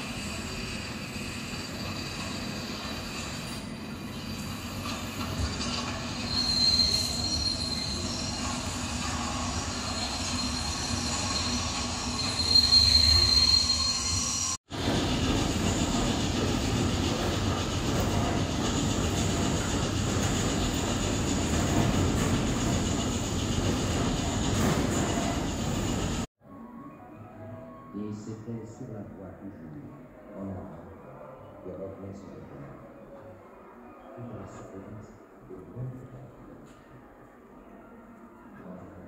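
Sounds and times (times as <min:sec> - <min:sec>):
train rumbling on track: 0:00.0 - 0:26.3
train wheels squealing: 0:00.0 - 0:26.3.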